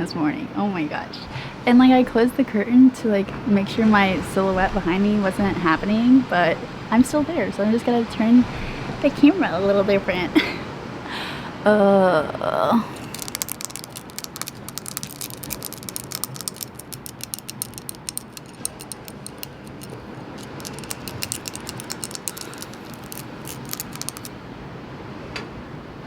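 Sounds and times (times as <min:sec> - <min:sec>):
seashells clicking: 0:13.0 - 0:24.4.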